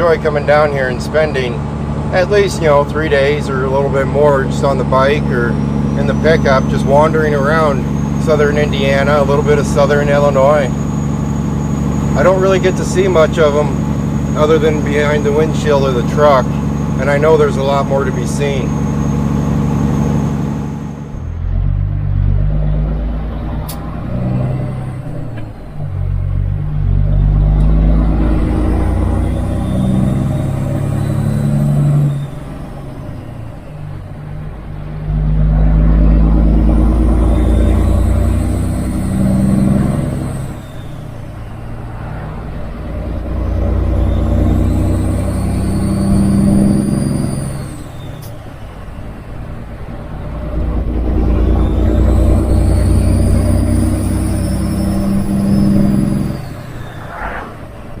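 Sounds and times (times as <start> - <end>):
truck diesel engine running: 0.0 - 58.0
faint whistle: 37.0 - 41.6, 43.8 - 49.3, 51.4 - 57.9.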